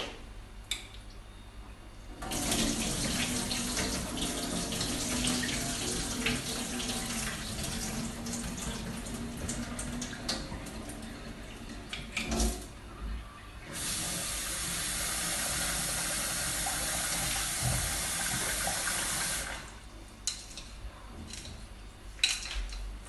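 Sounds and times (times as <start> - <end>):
tap running into sink: 16.8 - 19.4.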